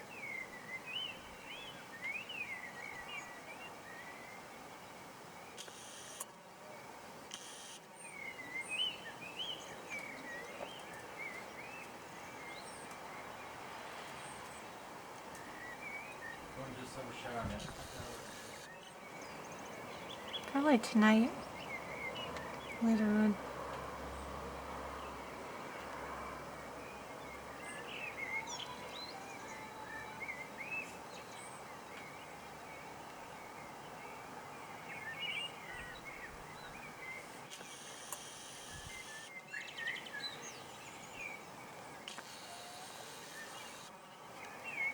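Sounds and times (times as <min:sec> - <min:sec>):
songbirds chirping and singing: 0:00.0 - 0:06.3, 0:07.8 - 0:23.4, 0:26.8 - 0:44.9
outdoor ambient hiss: 0:00.0 - 0:44.9
steady background noise: 0:02.7 - 0:28.4, 0:36.1 - 0:39.5, 0:40.5 - 0:44.8
songbird warbling: 0:42.0 - 0:44.9.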